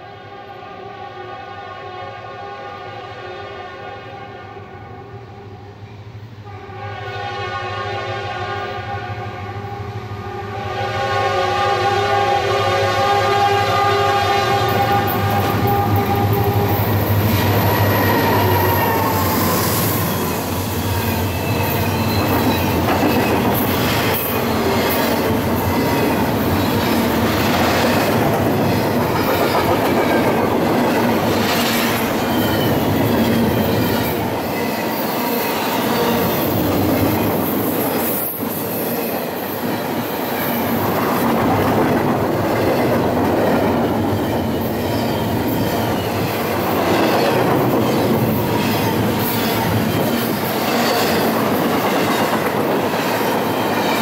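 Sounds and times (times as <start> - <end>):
locomotive horn chord: 6.4 - 20.5
train rolling by: 8.6 - 54.0.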